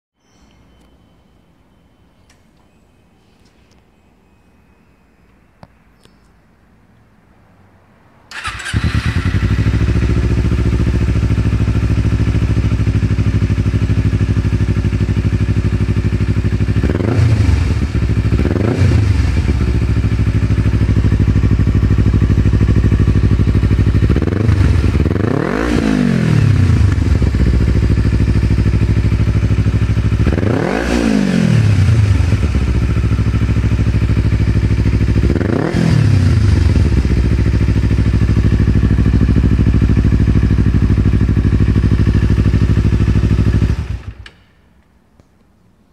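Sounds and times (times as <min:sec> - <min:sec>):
engine revving: 0:08.3 - 0:15.9, 0:16.6 - 0:40.4
motorcycle engine starting and idling: 0:08.3 - 0:44.7.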